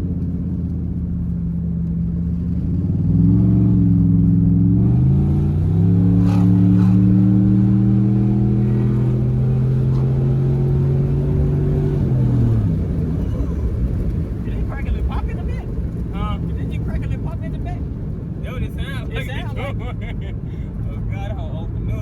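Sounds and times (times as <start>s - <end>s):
loud vee-eight engine exhaust: 2.1s - 14.3s.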